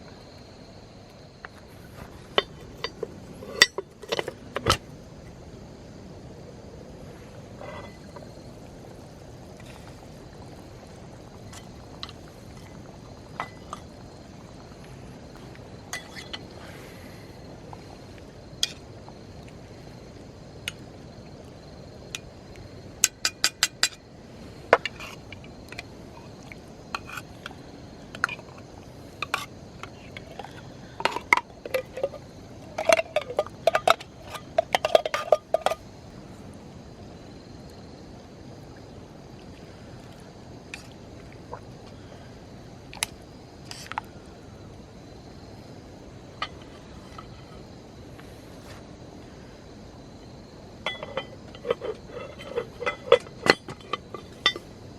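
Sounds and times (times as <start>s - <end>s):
metal cookware clinking: 2.4s - 4.8s, 50.8s - 54.6s.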